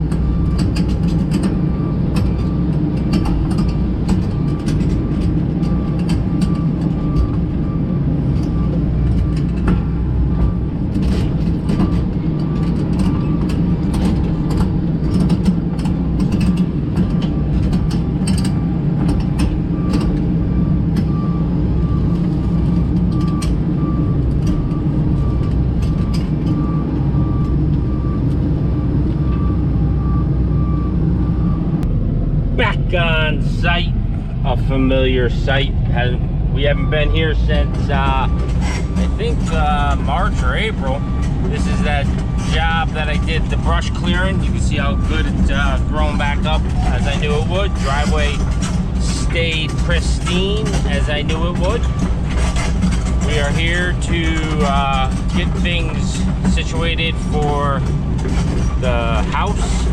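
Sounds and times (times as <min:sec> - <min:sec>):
diesel engine running: 0:00.0 - 0:59.9
clicks and rattles: 0:10.9 - 0:20.2, 0:45.1 - 0:59.9.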